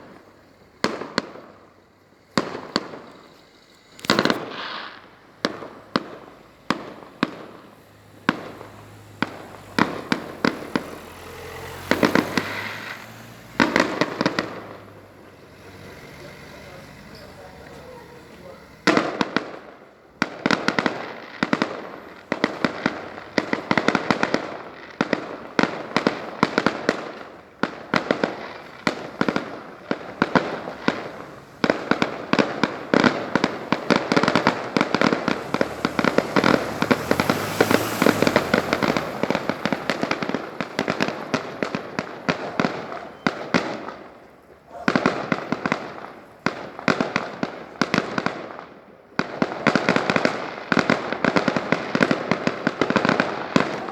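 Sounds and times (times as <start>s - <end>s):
fireworks bangs and crackles: 0.0s - 53.9s.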